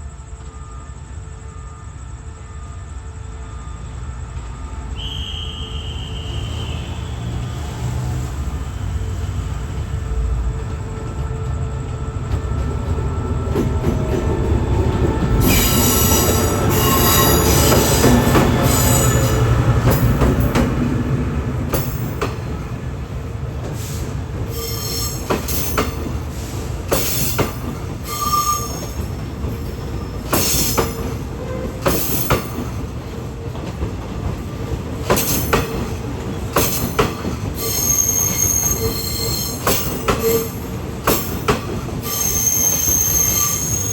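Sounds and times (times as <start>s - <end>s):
train rumbling past: 0.0s - 43.9s
wheels clacking on track: 6.6s - 43.9s
wheel squeal: 15.4s - 19.4s, 24.5s - 25.9s, 27.0s - 29.2s, 37.6s - 43.9s.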